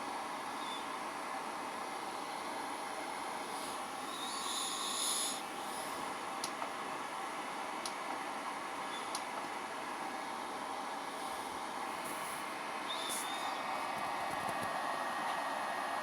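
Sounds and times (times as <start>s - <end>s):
spindle motor whirring whine: 0.0s - 16.0s.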